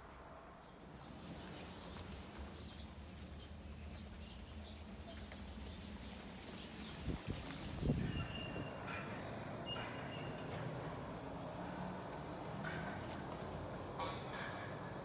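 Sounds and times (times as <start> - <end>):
small birds chirping: 0.6 - 11.6.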